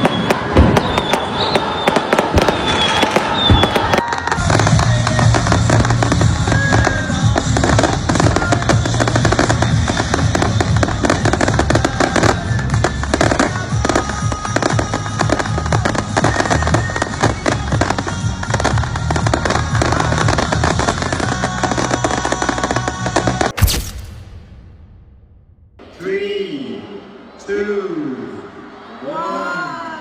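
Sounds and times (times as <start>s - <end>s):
fireworks crackling and popping: 0.0s - 25.4s
music: 3.6s - 23.6s.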